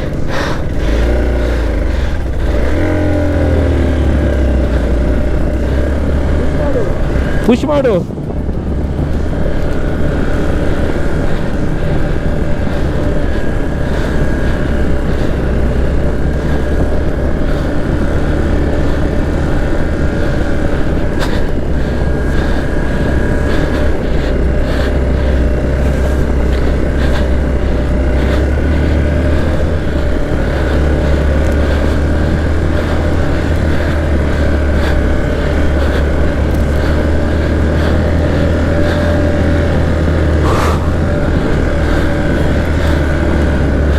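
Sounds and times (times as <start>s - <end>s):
steady high whine: 0.0s - 43.9s
vehicle engine droning: 0.0s - 43.9s.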